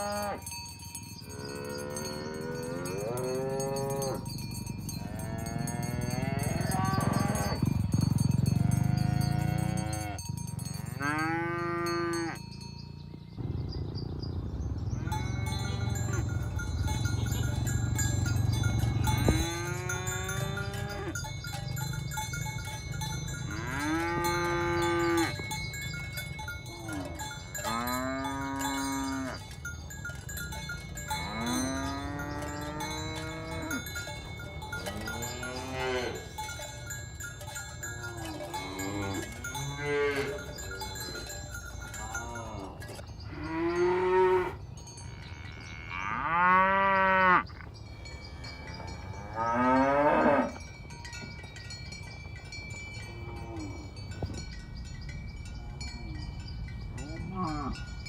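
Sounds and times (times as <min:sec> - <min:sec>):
cattle mooing: 0:00.0 - 0:00.4, 0:05.0 - 0:12.4, 0:17.0 - 0:21.2, 0:23.4 - 0:25.4, 0:26.7 - 0:29.4, 0:31.2 - 0:34.0, 0:34.6 - 0:36.3, 0:37.9 - 0:41.0, 0:45.2 - 0:47.6, 0:48.7 - 0:50.6.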